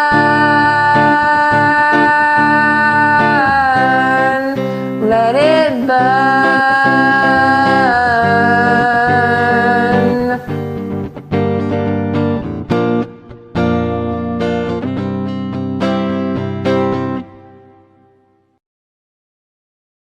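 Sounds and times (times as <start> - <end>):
person singing wordless notes: 0.0 - 11.6
guitar backing track: 0.0 - 18.6.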